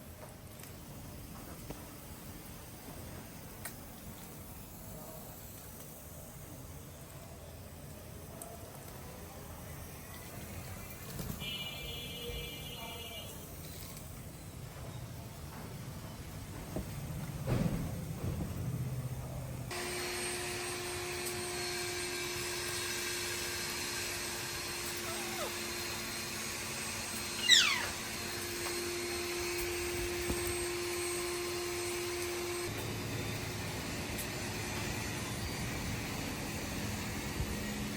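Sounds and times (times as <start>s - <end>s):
parrot call sweeping down: 25.0s - 25.6s, 27.4s - 28.0s.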